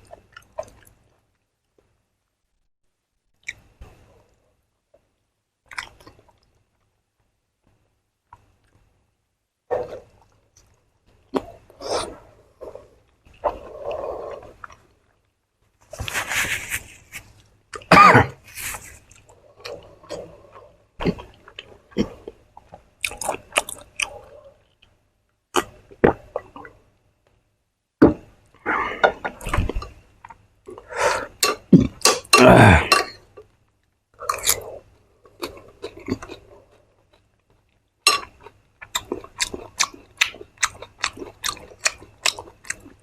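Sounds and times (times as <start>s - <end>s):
person chewing: 21.0s - 24.9s, 34.2s - 43.0s.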